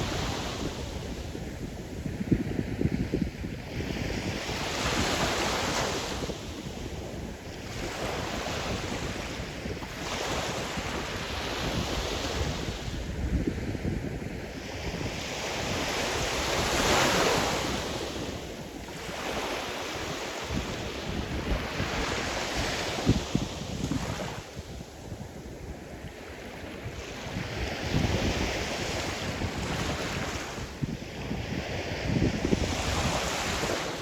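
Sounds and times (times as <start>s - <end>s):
waves breaking on shore: 14.4s - 34.0s.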